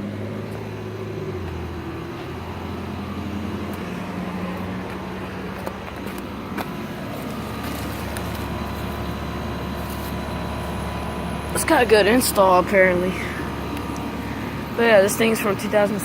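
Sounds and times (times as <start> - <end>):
compressor hum: 0.0 - 16.0
fan rushing noise: 0.0 - 16.0.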